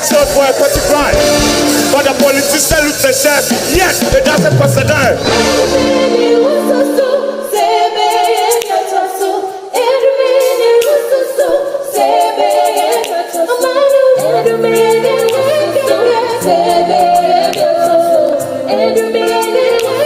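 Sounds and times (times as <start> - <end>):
a cappella group singing: 5.2 - 20.0.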